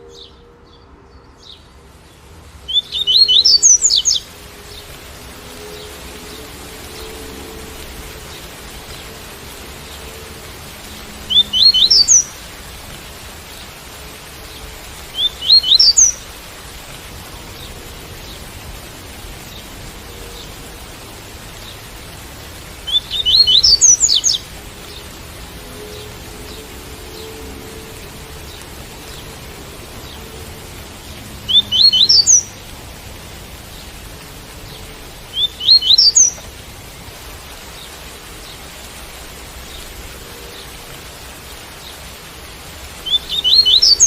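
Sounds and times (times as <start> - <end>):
rain hiss: 0.0 - 44.0
bird singing rising notes: 2.6 - 9.1, 10.9 - 12.4, 15.1 - 16.2, 22.9 - 25.0, 31.4 - 32.6, 34.7 - 36.5, 43.0 - 44.0.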